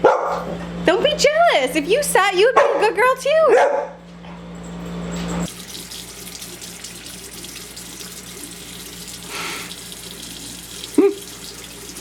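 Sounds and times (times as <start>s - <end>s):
faucet running into sink: 5.5s - 12.0s.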